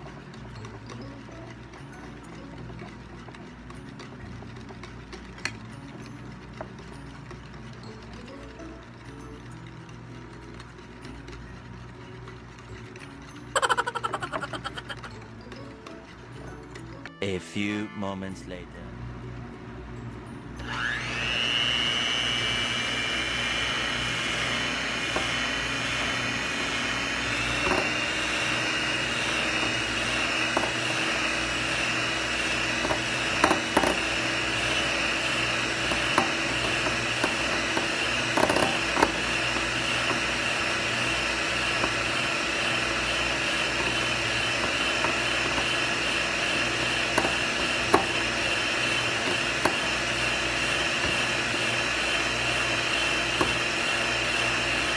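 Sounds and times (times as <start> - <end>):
beaters clicking on glass bowl: 0.0 - 11.5, 24.3 - 51.9
electric hand mixer whirring: 0.0 - 17.1, 20.6 - 54.9.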